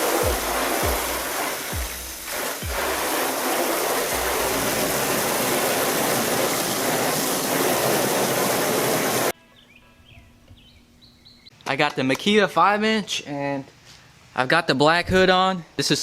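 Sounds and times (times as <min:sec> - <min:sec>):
faint bird chirps: 0:09.4 - 0:11.6.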